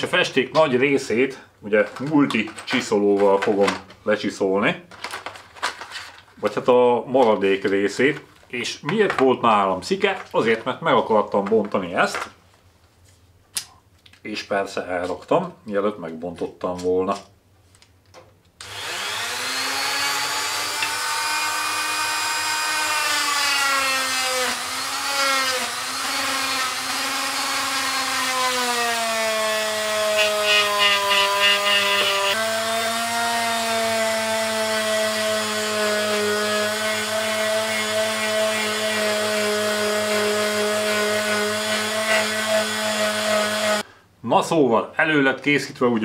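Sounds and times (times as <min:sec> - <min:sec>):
oscillating sander buzzing on steel: 0:30.0 - 0:32.6.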